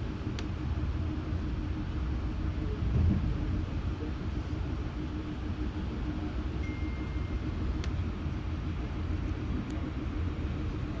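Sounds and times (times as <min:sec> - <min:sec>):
train rumbling: 0:00.0 - 0:11.0
faint high-pitched tone: 0:06.6 - 0:07.6.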